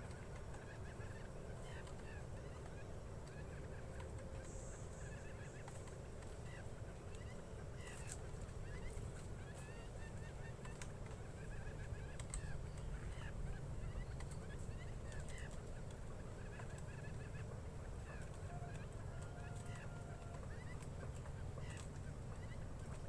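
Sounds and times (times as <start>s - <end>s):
quail chirping: 0.0s - 23.0s
steady low rumble: 0.0s - 23.0s.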